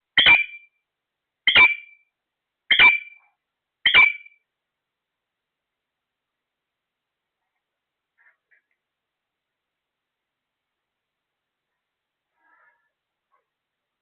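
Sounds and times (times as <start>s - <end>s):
parrot squawking: 0.2s - 0.6s, 1.5s - 2.0s, 2.7s - 3.2s, 3.9s - 4.3s.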